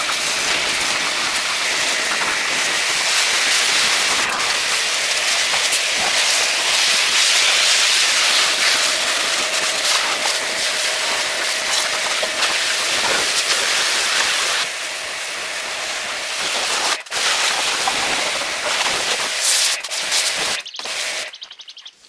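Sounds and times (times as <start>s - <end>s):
loud hissing rush: 0.0s - 21.5s.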